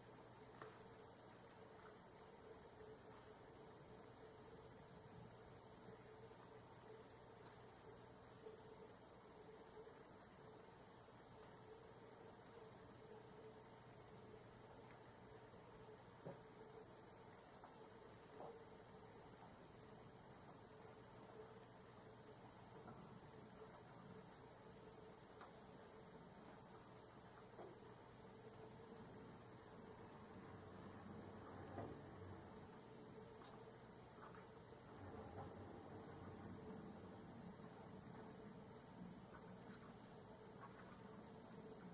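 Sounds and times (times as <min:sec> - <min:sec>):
cicadas calling in chorus: 0:38.5 - 0:41.2.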